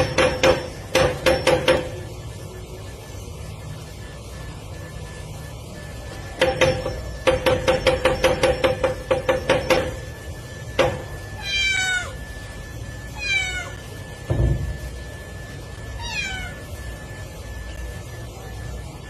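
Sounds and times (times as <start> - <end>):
rapid knocking taps: 6.4 - 9.9
cat meowing: 11.4 - 12.2, 13.2 - 13.8, 16.0 - 16.7.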